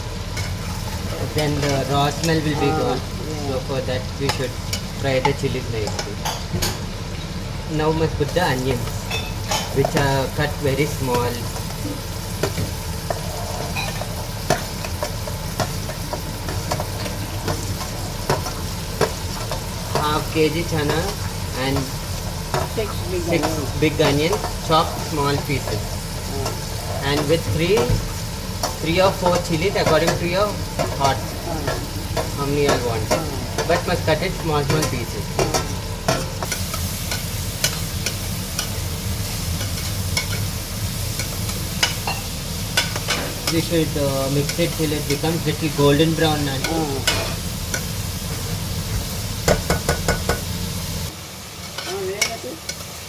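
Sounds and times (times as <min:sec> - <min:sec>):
chilies sizzling in hot oil: 0:00.0 - 0:53.0
spoon clinking and scraping pot: 0:13.0 - 0:20.2, 0:41.2 - 0:43.7.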